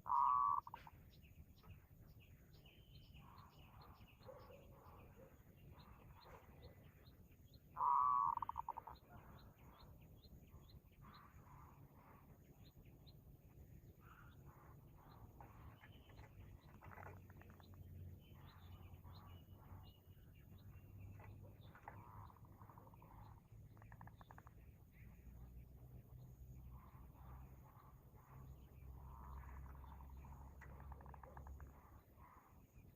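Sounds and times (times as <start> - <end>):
loud bird call: 0.0 - 0.9, 7.8 - 8.8
birds chirping: 0.0 - 32.9.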